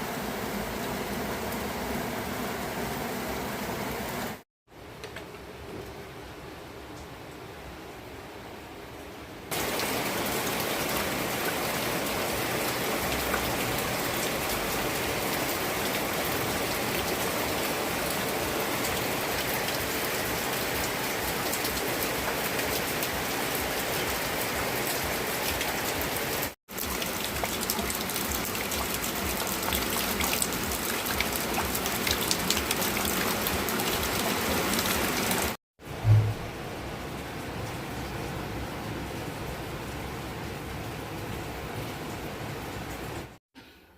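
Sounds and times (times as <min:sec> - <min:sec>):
rain falling: 0:00.0 - 0:43.4
raindrops ticking on a surface: 0:18.8 - 0:35.6.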